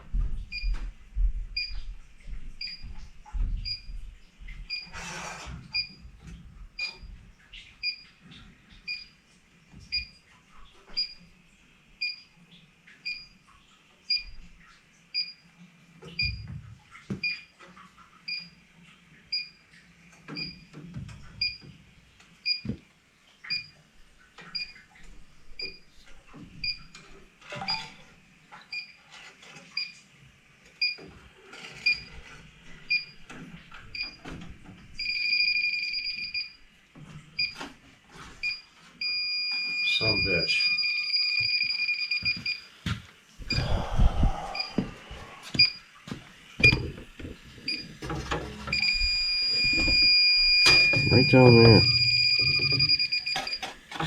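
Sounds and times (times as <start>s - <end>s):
leak detector beeping: 4.7s - 5.0s, 6.8s - 7.2s, 35.0s - 36.6s, 38.4s - 42.7s, 45.6s - 45.8s, 46.6s - 46.9s, 48.7s - 53.8s.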